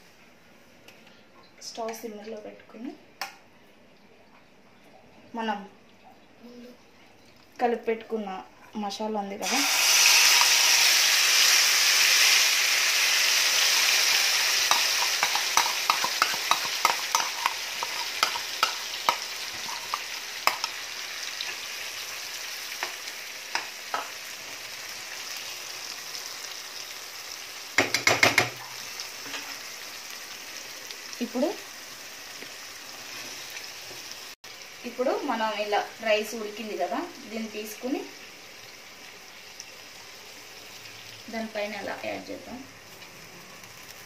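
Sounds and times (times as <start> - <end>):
prawns sizzling in hot oil: 9.4 - 44.0
spatula knocking in pan: 14.7 - 20.8, 27.8 - 28.6.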